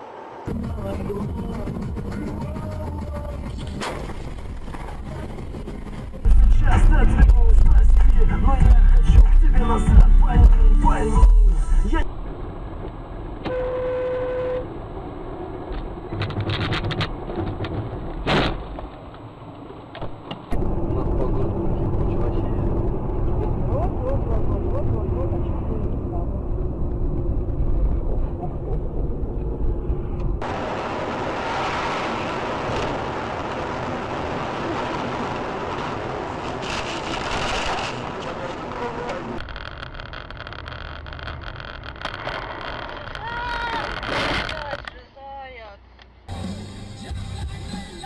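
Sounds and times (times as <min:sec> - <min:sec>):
car engine and tyres hum: 0:00.0 - 0:48.0
car horn: 0:13.4 - 0:14.8.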